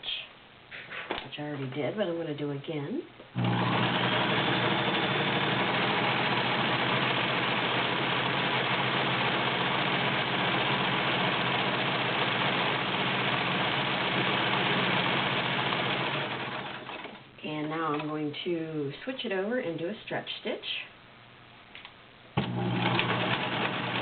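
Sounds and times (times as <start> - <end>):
sewing machine running: 3.4 - 17.2, 22.4 - 24.0.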